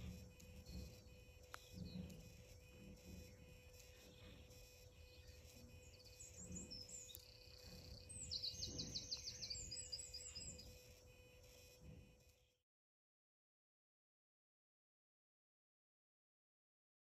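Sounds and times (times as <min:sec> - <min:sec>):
bird trill: 0:00.0 - 0:11.3
songbirds chirping: 0:00.0 - 0:12.6.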